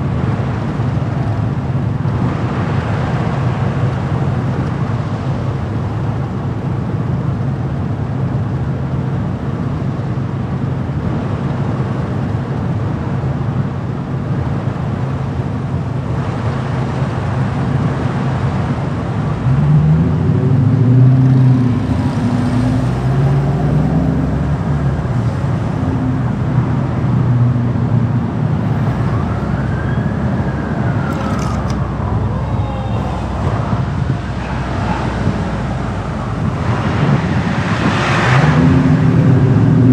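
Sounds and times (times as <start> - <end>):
road and tyre noise: 0.0 - 39.9
engine revving: 19.4 - 39.9.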